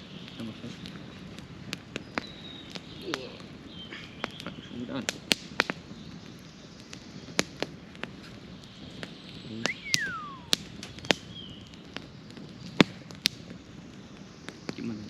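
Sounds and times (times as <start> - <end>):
campfire crackling and popping: 0.0 - 15.0
falling whistle-like tone: 9.6 - 10.6.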